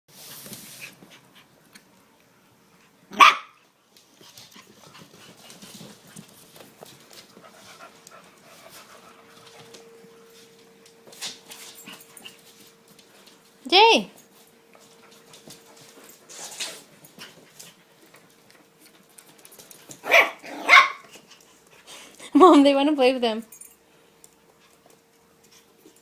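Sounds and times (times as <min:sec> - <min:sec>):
dog barking sharply: 0:03.1 - 0:03.6, 0:20.0 - 0:21.0
puppies scuffling and clicking: 0:03.6 - 0:26.0.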